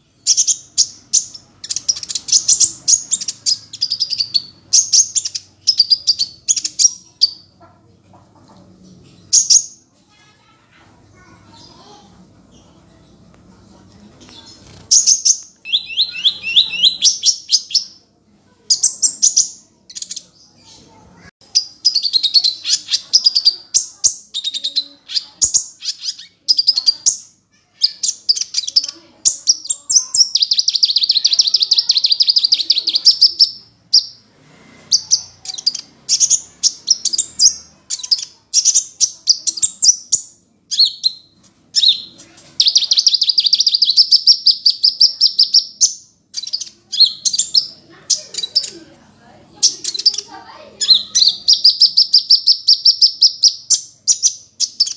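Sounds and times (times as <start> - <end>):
sunbird singing trills: 14.9 - 18.0, 35.0 - 48.8.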